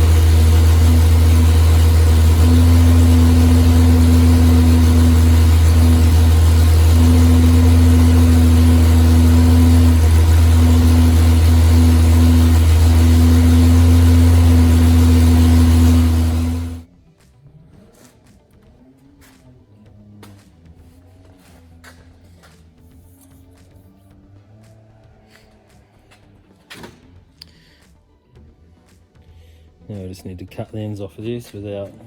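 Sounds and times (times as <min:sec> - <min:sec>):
straight-six engine running: 0:00.0 - 0:16.8.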